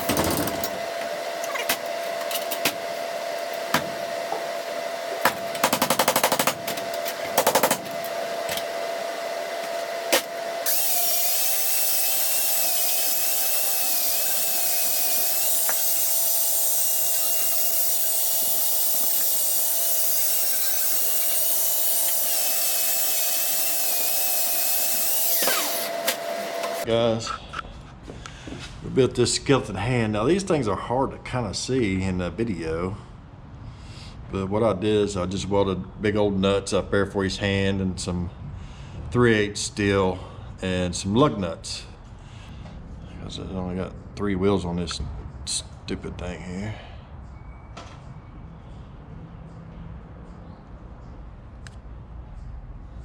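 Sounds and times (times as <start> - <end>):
metalworking tool hissing whine: 6.8 - 26.9.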